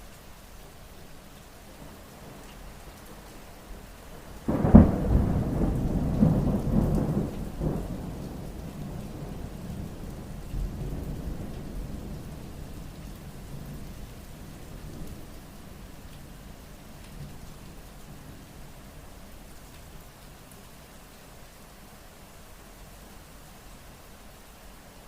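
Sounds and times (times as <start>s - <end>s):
steady rain: 0.0s - 25.0s
thunder crack and rumble: 4.5s - 12.4s.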